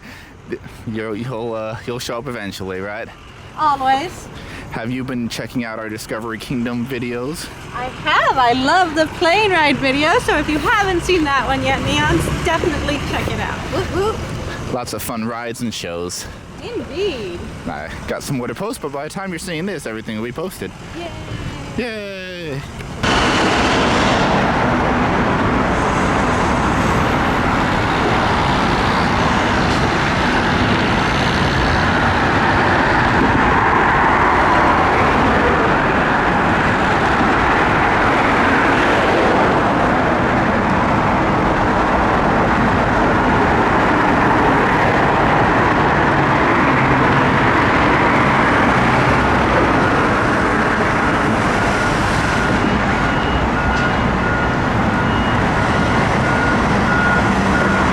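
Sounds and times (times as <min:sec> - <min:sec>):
traffic rumble: 0:00.0 - 0:57.9
faint beeping tones: 0:51.7 - 0:57.9.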